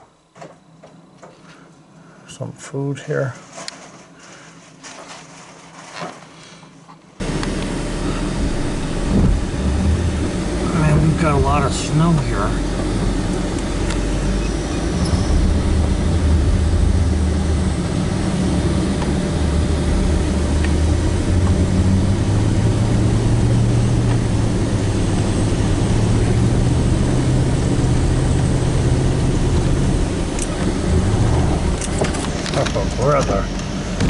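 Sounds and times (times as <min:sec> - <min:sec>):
truck engine under load: 0:07.2 - 0:34.0.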